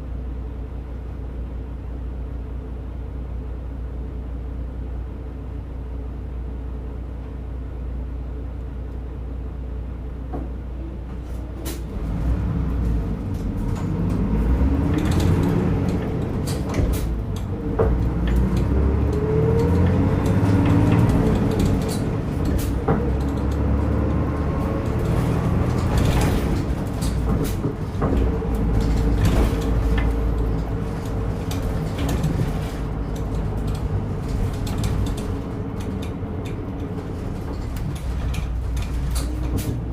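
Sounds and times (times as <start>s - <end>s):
diesel bus engine idling and accelerating: 0.0s - 39.9s
bus body clicks and rattles: 10.1s - 39.9s.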